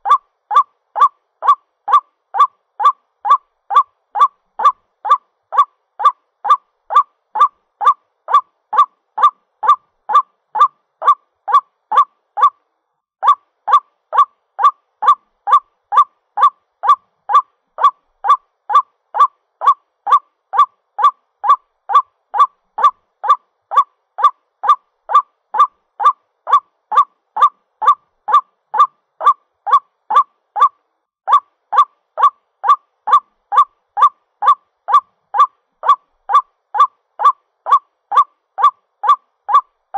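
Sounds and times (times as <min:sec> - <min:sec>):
bird calling harsh notes: 0:00.0 - 0:12.6.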